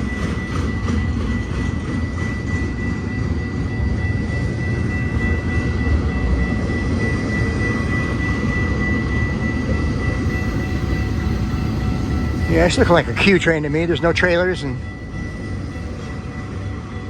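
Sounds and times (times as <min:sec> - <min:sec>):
diesel locomotive rumble: 0:00.0 - 0:17.0
thin high tone: 0:00.0 - 0:17.0.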